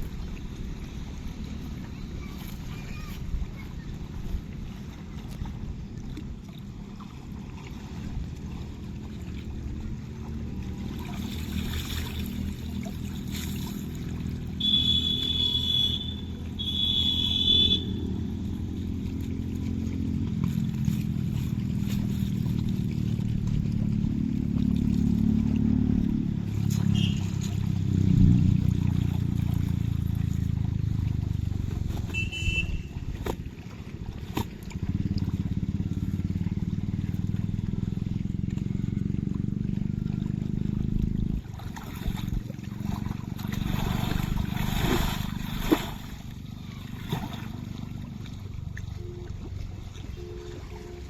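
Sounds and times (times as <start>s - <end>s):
vehicle engine running: 6.7s - 41.6s
horn blasts: 14.6s - 18.3s, 26.7s - 27.7s, 31.9s - 33.3s, 48.8s - 51.0s.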